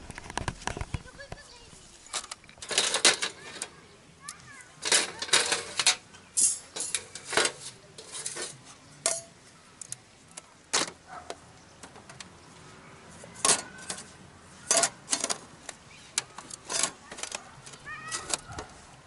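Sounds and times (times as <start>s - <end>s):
metal cookware clinking: 4.8s - 9.3s.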